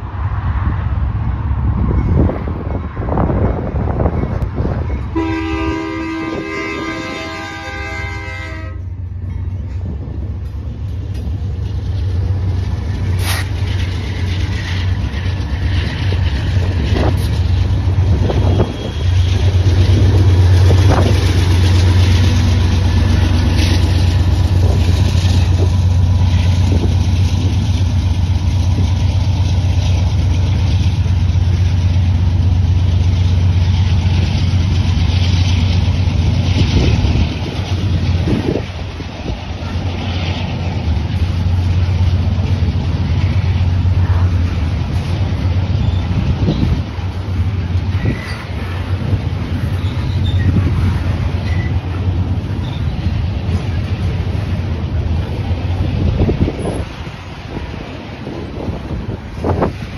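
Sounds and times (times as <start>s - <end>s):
freight cars rumbling on rails: 0.0s - 59.9s
locomotive engine rumble: 0.0s - 59.9s
train clanks: 1.4s - 59.9s
locomotive air horn chord: 5.1s - 8.8s.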